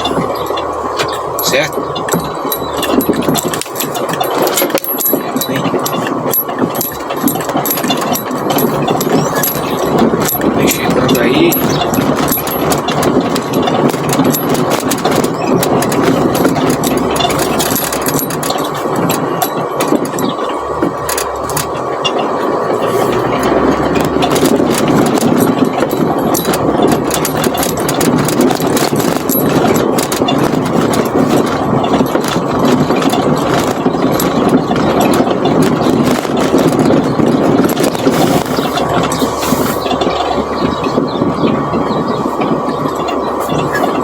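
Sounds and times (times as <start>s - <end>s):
car engine droning: 0.0s - 44.0s
rattles and clicks: 0.0s - 44.0s.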